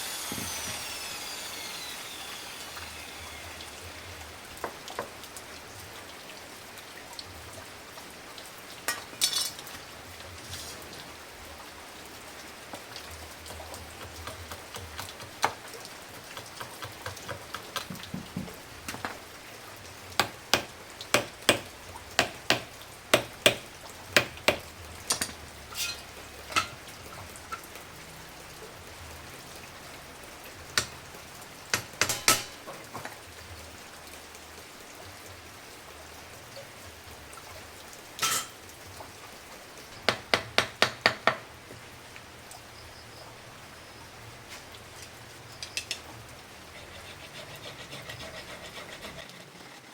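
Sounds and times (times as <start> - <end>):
steady hiss: 0.0 - 6.9.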